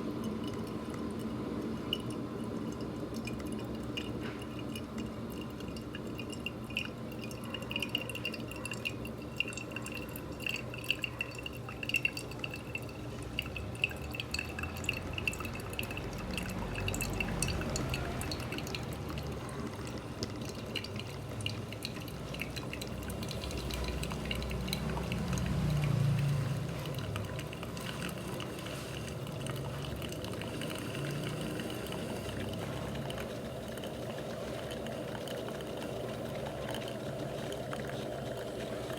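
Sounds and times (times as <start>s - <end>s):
coffee dripping into cup: 0.0s - 38.9s
espresso machine gurgling: 0.0s - 38.9s.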